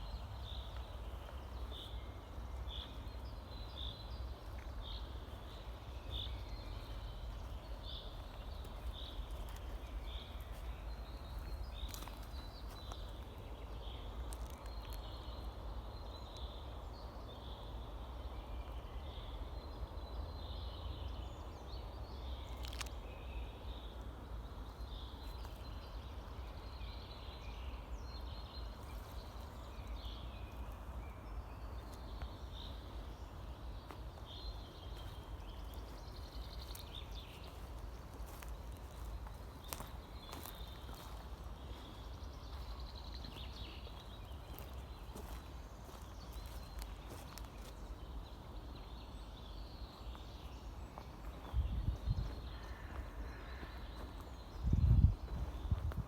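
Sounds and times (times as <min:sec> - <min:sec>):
birds chirping: 0:00.0 - 0:17.8, 0:21.1 - 0:56.0
wind rumble: 0:51.4 - 0:53.1, 0:54.5 - 0:56.0.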